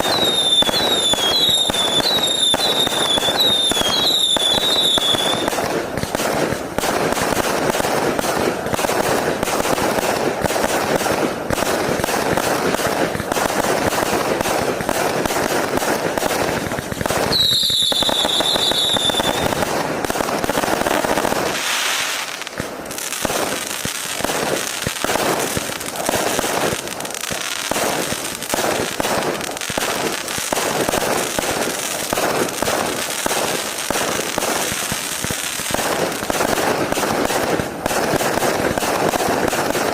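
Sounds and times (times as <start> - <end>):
firework whistle: 0.0 - 5.8, 17.1 - 19.7
fireworks firing and crackling: 0.0 - 39.9.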